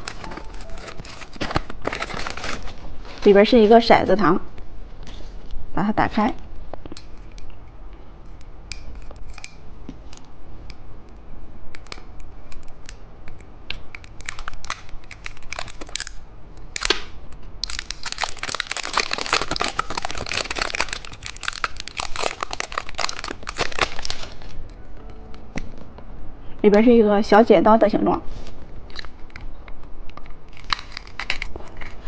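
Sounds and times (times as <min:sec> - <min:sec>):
plastic packaging crinkling: 0:00.0 - 0:03.8, 0:14.0 - 0:16.9, 0:17.6 - 0:24.8, 0:28.3 - 0:32.0.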